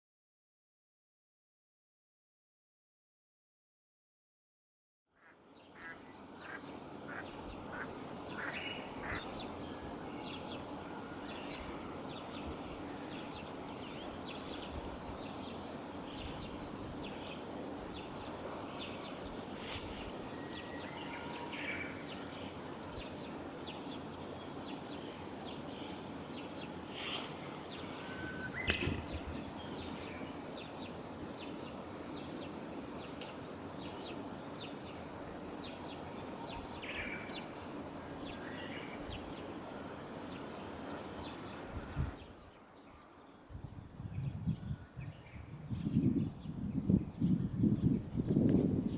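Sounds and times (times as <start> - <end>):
background hiss: 5.4 - 43.6
short high bird calls: 26.6 - 30.2.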